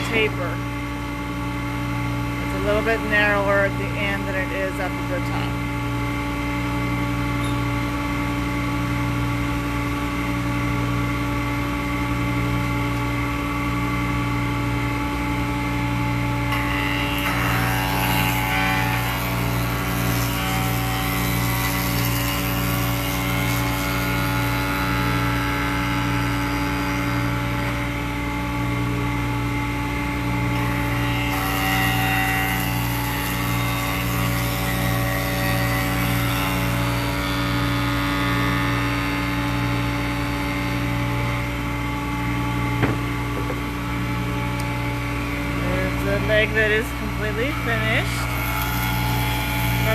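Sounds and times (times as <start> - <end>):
jointer motor humming: 0.0 - 49.9
hissing wood cutting noise: 16.5 - 28.0, 42.7 - 49.9.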